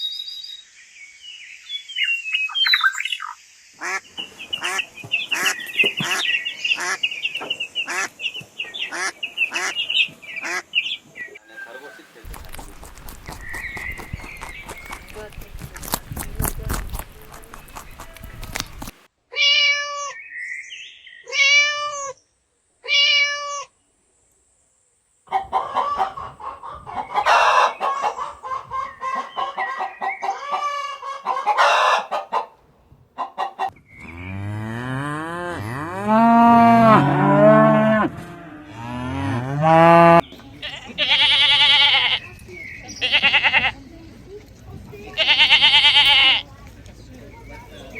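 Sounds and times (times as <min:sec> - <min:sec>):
mixed noisy animal calls: 0:25.3 - 0:32.6, 0:33.2 - 0:43.8, 0:45.0 - 0:46.5.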